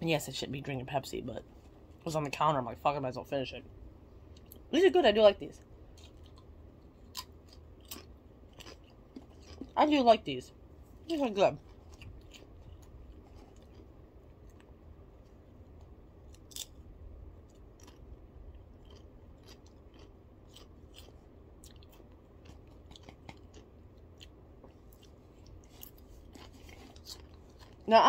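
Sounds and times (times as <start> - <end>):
low steady hum: 0.0 - 28.0
crisps being chewed: 5.9 - 9.8, 11.0 - 27.9.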